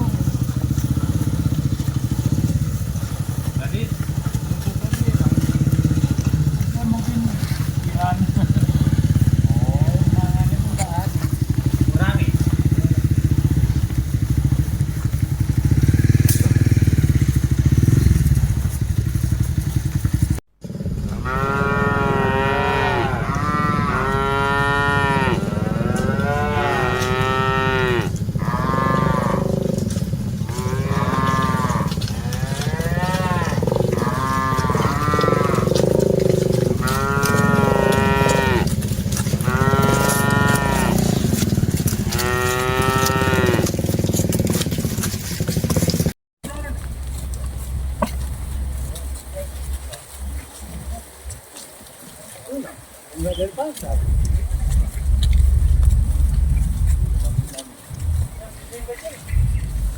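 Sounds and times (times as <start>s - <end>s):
low engine rumble: 0.0s - 51.6s, 52.2s - 59.9s
cattle mooing: 20.8s - 43.9s.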